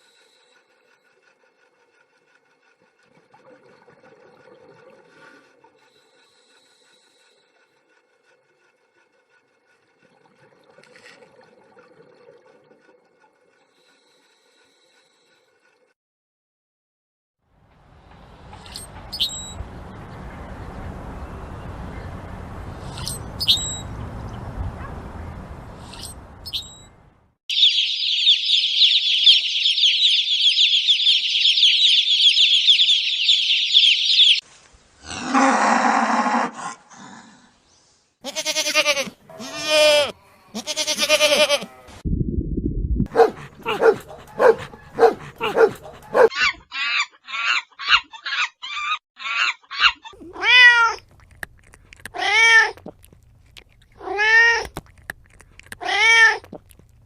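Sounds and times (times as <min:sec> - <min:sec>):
high animal chirping: 0:18.6 - 0:19.6, 0:22.8 - 0:23.9, 0:25.8 - 0:26.9, 0:27.5 - 0:34.4, 0:43.1 - 0:57.0
longer animal calls: 0:43.1 - 0:51.3
rising and falling animal calls: 0:43.1 - 0:51.3.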